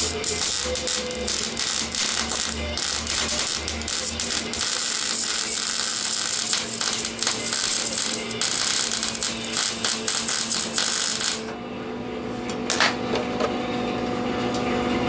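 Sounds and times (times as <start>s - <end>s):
welding arc crackling: 0.0s - 11.5s.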